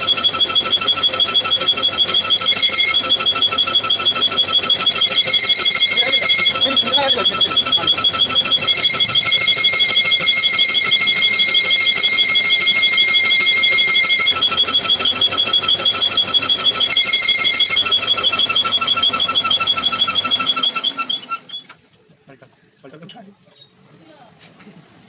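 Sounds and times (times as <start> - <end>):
high steady whine: 0.0 - 20.5
lathe running: 0.0 - 21.4.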